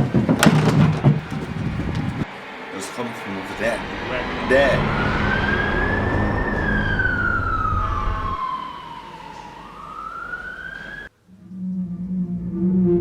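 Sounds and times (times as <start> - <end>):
low traffic rumble: 0.0 - 13.0
siren wailing: 3.4 - 13.0.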